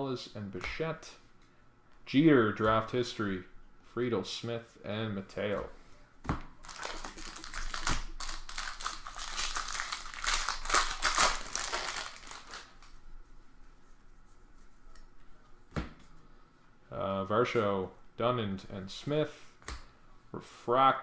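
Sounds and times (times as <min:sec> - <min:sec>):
cards rustling: 0:06.5 - 0:13.0
wrapper crinkling and tearing: 0:06.6 - 0:13.0.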